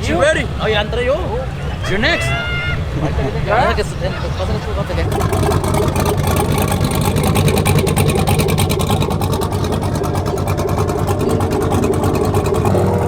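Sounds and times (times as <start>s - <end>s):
truck engine revving high: 2.8s - 13.0s.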